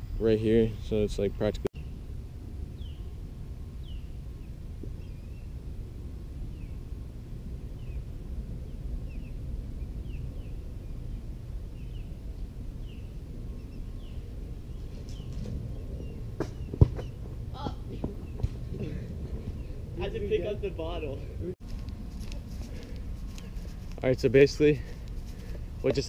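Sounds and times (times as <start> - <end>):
low steady rumble: 0.0 - 26.0
bird chirping: 2.7 - 3.2, 3.8 - 5.6, 7.6 - 17.4.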